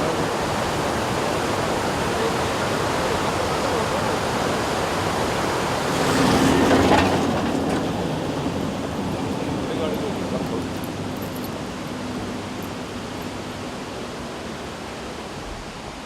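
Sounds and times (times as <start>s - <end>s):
steady rushing noise: 0.0s - 16.0s
vehicle engine hum: 5.0s - 15.4s.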